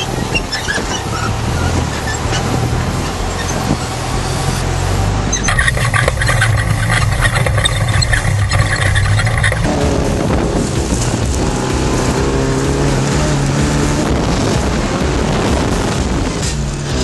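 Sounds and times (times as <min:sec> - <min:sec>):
road noise: 0:00.0 - 0:17.0
vehicle engine low hum: 0:00.0 - 0:17.0
dense high clatter: 0:05.4 - 0:12.4.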